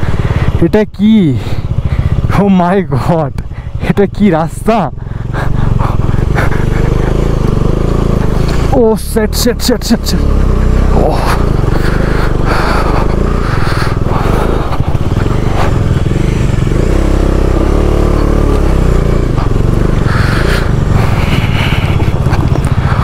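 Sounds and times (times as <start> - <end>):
motorcycle engine labouring: 0.0 - 23.0
person talking: 2.3 - 5.0, 8.6 - 11.6.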